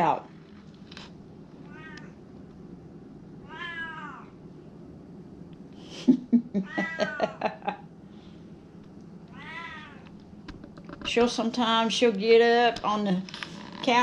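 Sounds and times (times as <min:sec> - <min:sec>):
cat meowing: 0:01.7 - 0:02.2, 0:03.4 - 0:04.4, 0:09.3 - 0:10.1.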